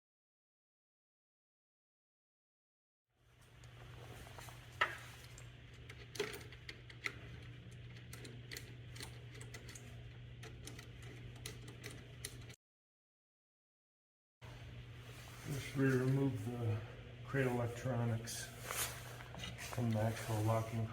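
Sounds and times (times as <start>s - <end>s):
small hard parts clicking: 5.8s - 12.6s
steady low hum: 14.4s - 20.9s.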